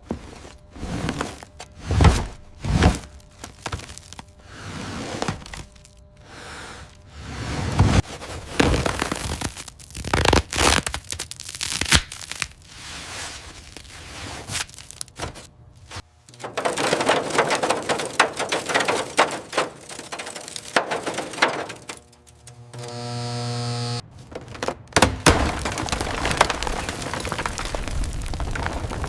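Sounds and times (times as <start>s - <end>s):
scraping on a car: 0.0s - 5.8s, 15.2s - 22.5s, 24.1s - 27.4s.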